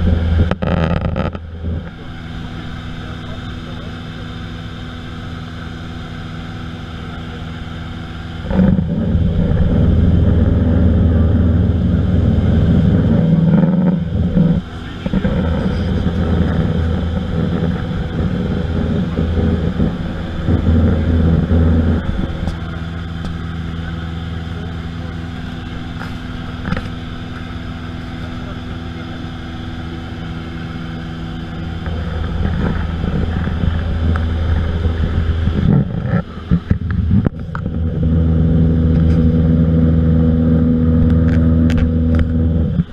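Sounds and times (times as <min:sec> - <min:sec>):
aircraft engine droning: 0:00.0 - 0:42.9
rough engine rumble: 0:00.0 - 0:42.9.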